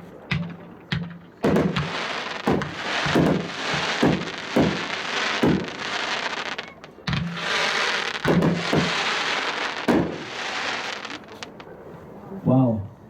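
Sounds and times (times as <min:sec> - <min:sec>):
firework bangs: 0:00.0 - 0:11.7
firework crackling: 0:00.0 - 0:11.7.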